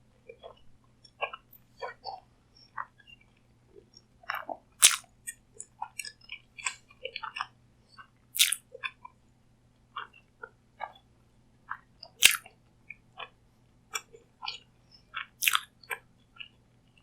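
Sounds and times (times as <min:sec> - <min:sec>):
crisp crunching bites: 0:04.8 - 0:05.0, 0:08.4 - 0:08.6, 0:12.2 - 0:12.4, 0:15.4 - 0:15.6
person chewing food: 0:04.8 - 0:05.0, 0:08.4 - 0:08.6, 0:12.2 - 0:12.4, 0:15.4 - 0:15.7
wet mouth clicks and smacks: 0:04.8 - 0:05.0, 0:08.4 - 0:08.6, 0:12.2 - 0:12.4, 0:15.4 - 0:15.7.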